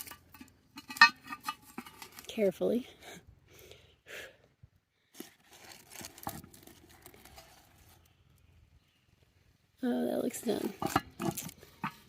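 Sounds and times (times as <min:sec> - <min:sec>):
pot lid scraping and knocking: 0:00.0 - 0:02.1, 0:10.6 - 0:12.0.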